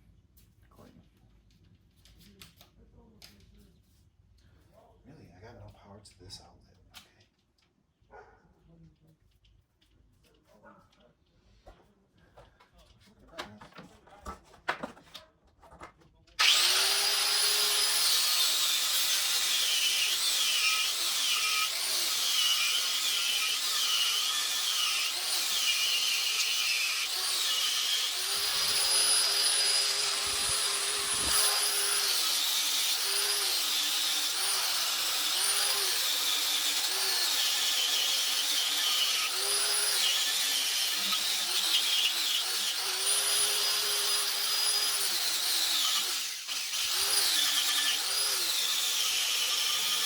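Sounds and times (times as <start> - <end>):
power tool whining on metal: 16.4 - 50.0.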